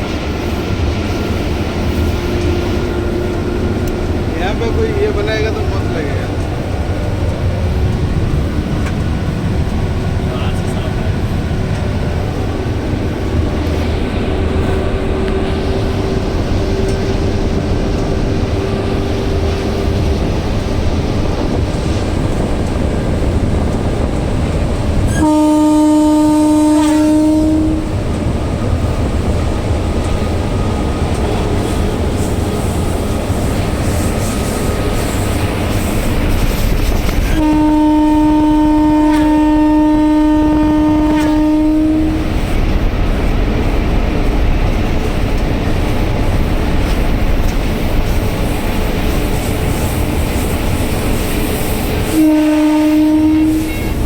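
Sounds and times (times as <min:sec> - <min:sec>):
train rumbling and rattling: 0:00.0 - 0:54.0
train horn blowing: 0:01.8 - 0:05.1, 0:12.6 - 0:20.8, 0:24.9 - 0:28.1, 0:37.2 - 0:42.5, 0:51.6 - 0:54.0.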